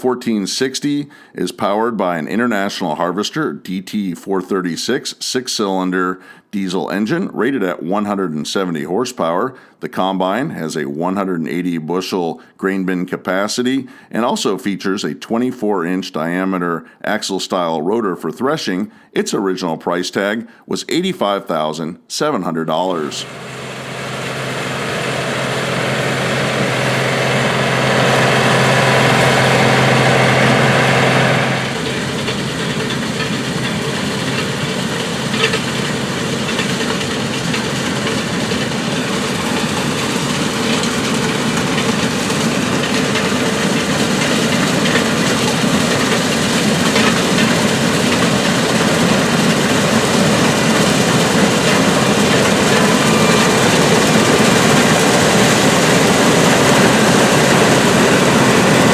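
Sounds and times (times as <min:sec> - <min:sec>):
combine harvester droning: 0:23.1 - 0:58.9
steady hum: 0:23.2 - 0:58.9.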